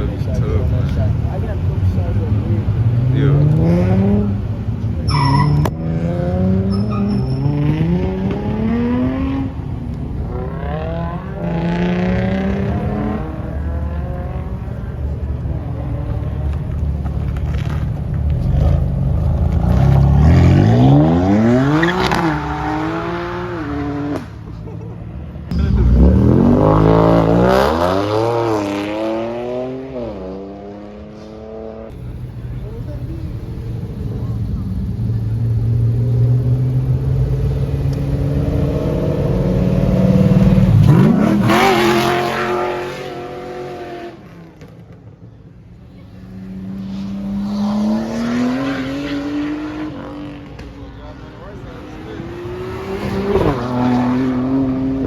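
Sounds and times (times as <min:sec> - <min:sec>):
car engine revving hard: 0:02.0 - 0:04.6, 0:07.4 - 0:14.8, 0:19.6 - 0:24.4, 0:35.1 - 0:44.4, 0:46.3 - 0:50.5, 0:51.4 - 0:55.0.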